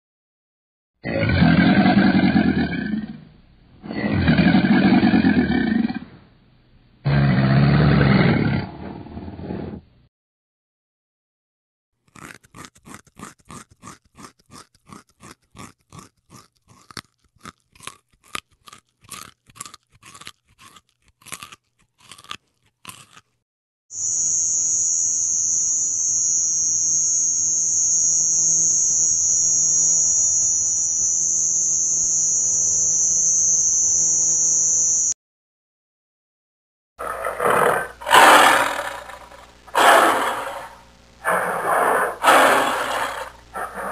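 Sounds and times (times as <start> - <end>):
animal chewing crunchy food: 12.0 - 23.4, 37.0 - 43.9
high-pitched whine: 24.0 - 35.2.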